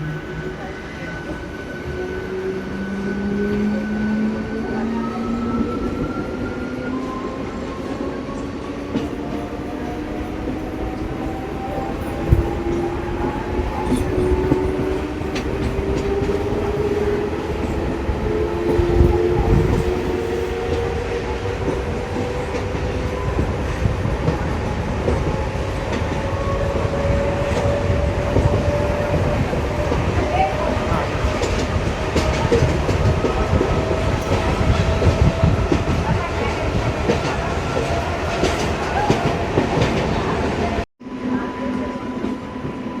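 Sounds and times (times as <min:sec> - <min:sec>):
rising train whine: 0:00.0 - 0:43.0
train rumbling on rails: 0:00.0 - 0:43.0.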